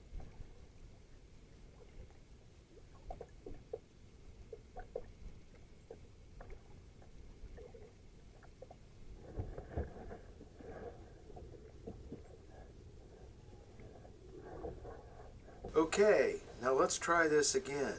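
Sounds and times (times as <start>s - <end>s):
small water splashes: 0.0s - 12.8s.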